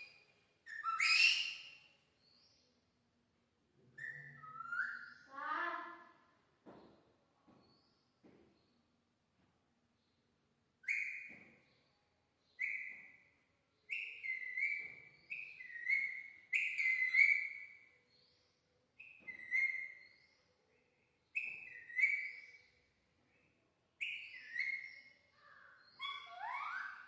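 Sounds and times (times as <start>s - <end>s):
parrot whistled calls: 0.7s - 1.7s, 4.0s - 5.2s, 26.0s - 27.0s.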